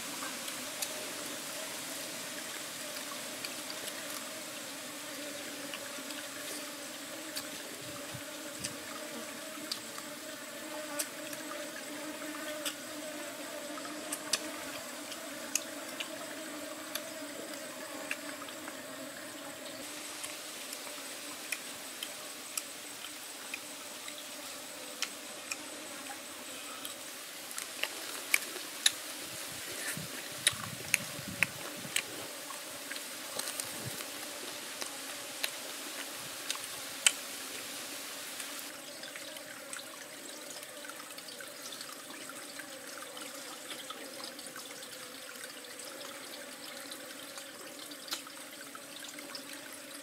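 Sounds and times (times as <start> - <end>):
chewing and lip-smacking: 30.4 - 32.1.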